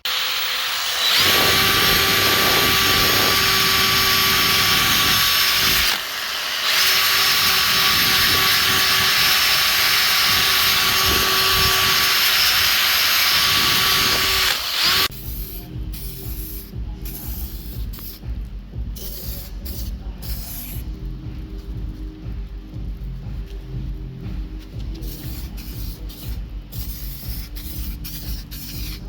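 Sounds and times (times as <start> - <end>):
power tool whining: 0.0 - 16.7.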